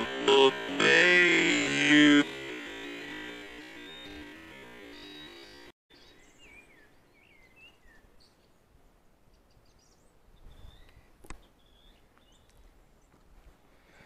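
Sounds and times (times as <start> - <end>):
faint birdsong: 0.0 - 14.0.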